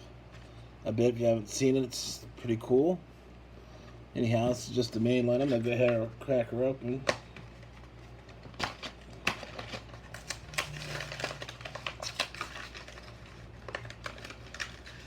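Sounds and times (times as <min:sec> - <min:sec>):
plastic packaging crackling: 0:07.0 - 0:15.0.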